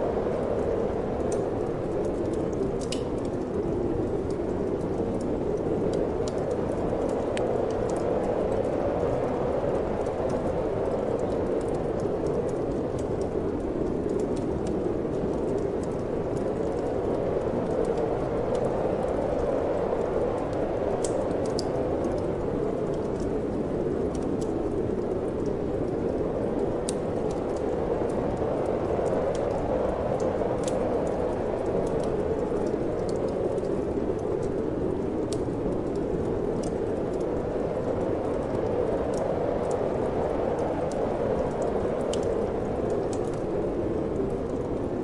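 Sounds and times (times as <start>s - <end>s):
wood fire crackling: 0.0s - 45.0s
wind blowing: 24.7s - 45.0s.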